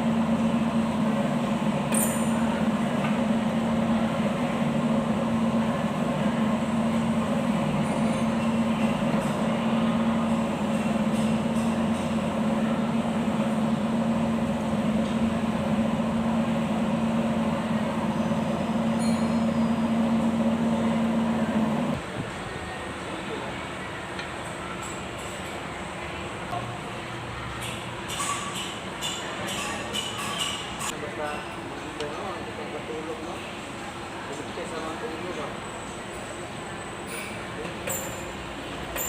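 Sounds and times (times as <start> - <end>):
machine humming: 2.5 - 22.0.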